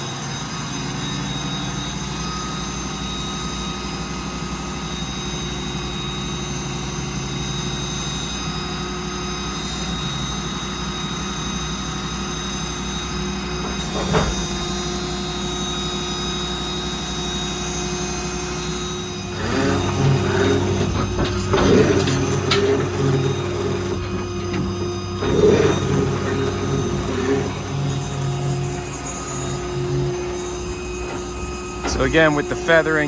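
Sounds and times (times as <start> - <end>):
hydraulic crane whine: 0.0 - 33.0
diesel engine running: 13.3 - 33.0
loud clattering: 19.4 - 32.3.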